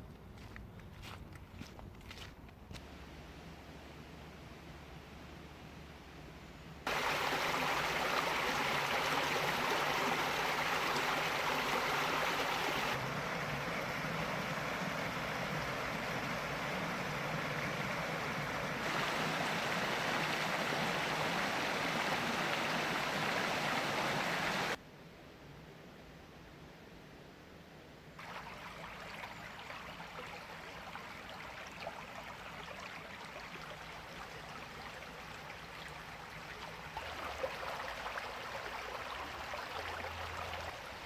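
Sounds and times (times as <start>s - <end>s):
brook water rushing: 6.8s - 24.8s, 28.2s - 41.0s.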